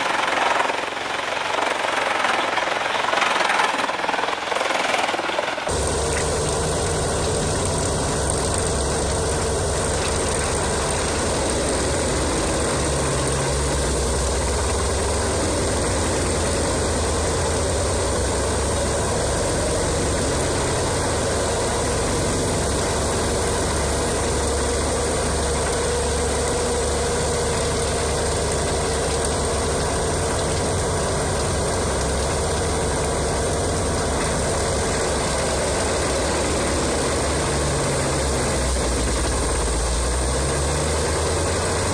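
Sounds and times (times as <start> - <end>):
wood chipper engine droning: 0.0 - 41.9.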